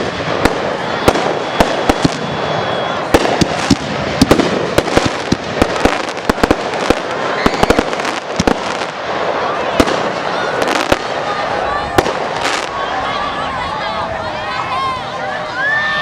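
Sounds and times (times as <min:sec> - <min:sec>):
thin high whistle: 0:00.0 - 0:03.5
fireworks cracks and bangs: 0:00.0 - 0:13.2
fireworks crackle: 0:00.0 - 0:13.6.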